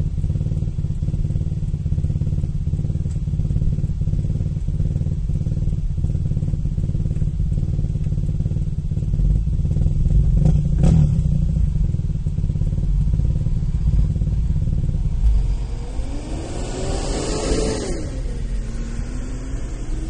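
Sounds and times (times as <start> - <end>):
faint irregular engine knocks: 0.0 - 15.4
car engine droning: 0.0 - 20.0.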